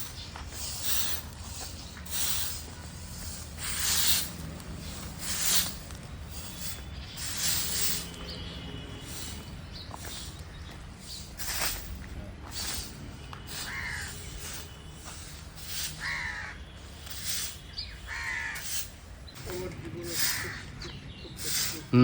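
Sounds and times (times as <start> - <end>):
crows cawing: 13.5 - 14.4, 15.9 - 16.6, 18.0 - 18.8, 20.1 - 20.8.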